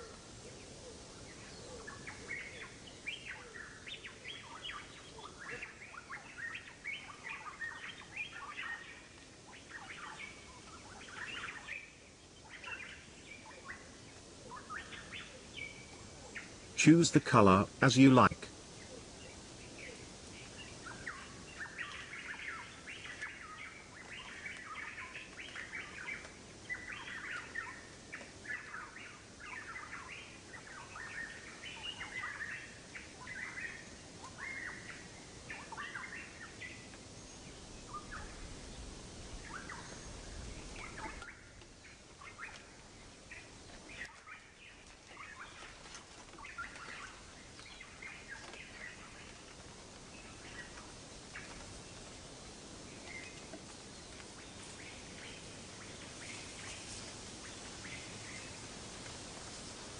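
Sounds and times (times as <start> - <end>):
faint steady hiss: 0.0 - 59.9
small birds chirping: 0.0 - 59.9.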